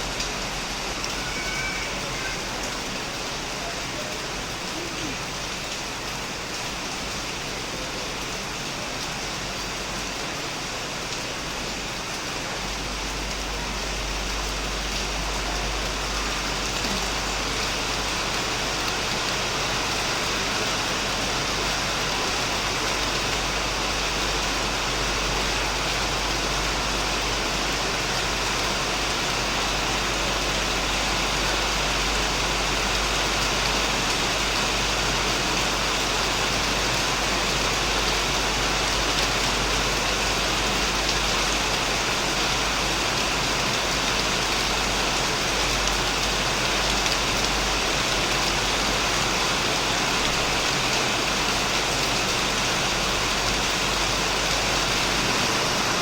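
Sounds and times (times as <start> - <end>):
heavy rain on shed: 0.0 - 56.0.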